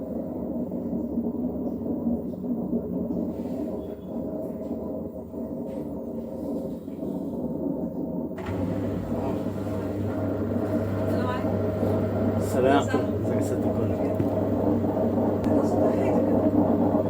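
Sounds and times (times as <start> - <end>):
washing machine humming: 8.1 - 17.0.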